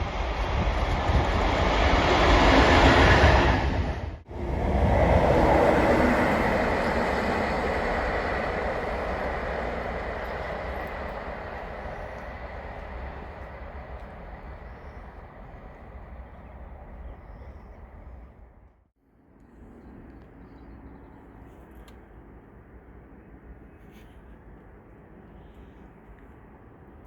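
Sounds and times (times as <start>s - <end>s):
freight train rumbling past: 0.0s - 18.7s.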